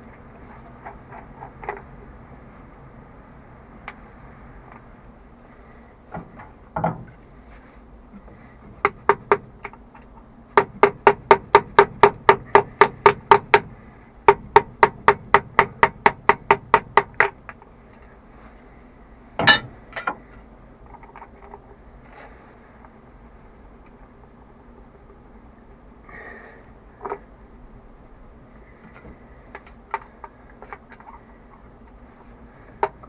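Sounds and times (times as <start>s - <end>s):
hammer striking metal: 19.4s - 20.1s
loud metal clank: 19.4s - 20.1s.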